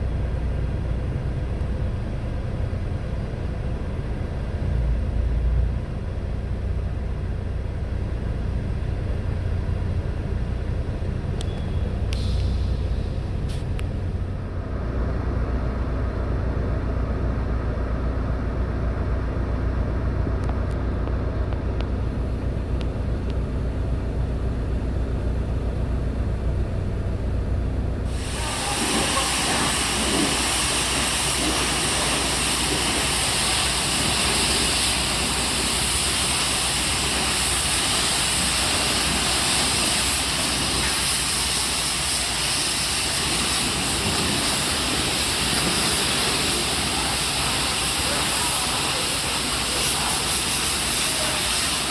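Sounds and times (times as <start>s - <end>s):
high-pressure water spray hissing: 28.1s - 51.9s.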